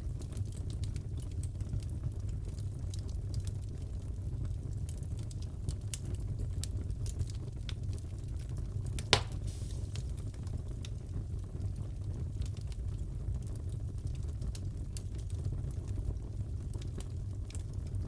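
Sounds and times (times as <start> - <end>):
burning logs rumble: 0.0 - 18.0
fire crackles: 0.0 - 18.0
loud fire pop: 9.0 - 10.3.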